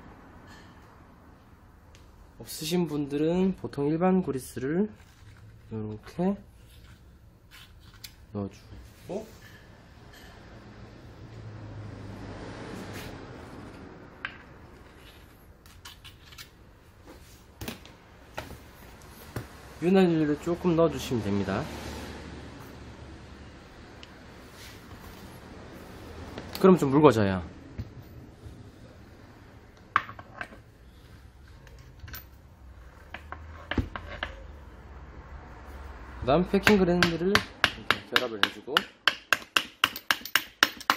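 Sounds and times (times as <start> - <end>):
soft rubbing noise: 24.4 - 26.1
metal parts clicking and knocking: 39.5 - 40.9.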